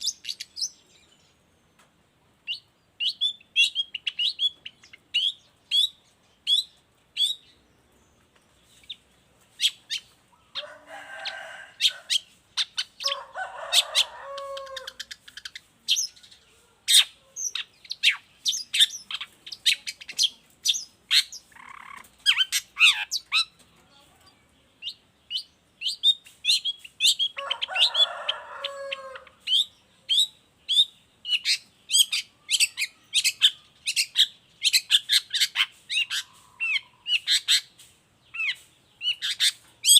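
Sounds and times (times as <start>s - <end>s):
bird singing high chirps: 2.4s - 7.6s, 13.8s - 23.6s, 24.3s - 27.8s, 28.8s - 39.9s
harsh rasping bird calls: 8.6s - 23.6s, 24.2s - 39.9s.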